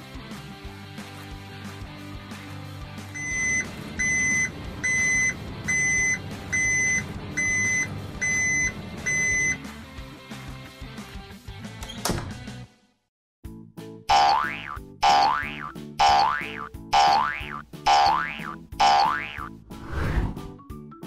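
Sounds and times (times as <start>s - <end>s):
cartoon background music: 13.5s - 21.0s.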